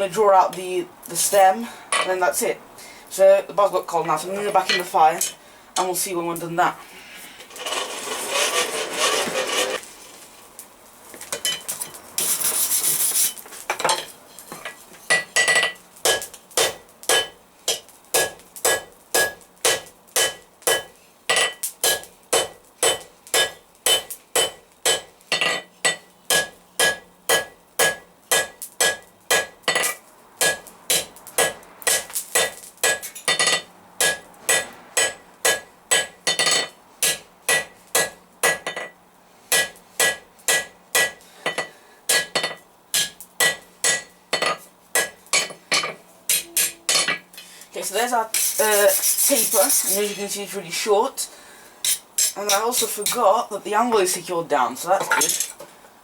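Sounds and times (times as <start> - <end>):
hammer striking steel on anvil: 15.1 - 38.9, 39.5 - 47.2.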